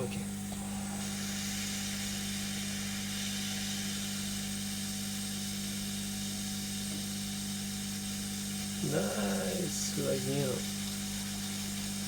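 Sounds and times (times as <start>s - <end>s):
fan humming: 0.0s - 4.6s, 7.9s - 11.9s
hot air hissing: 0.0s - 12.0s.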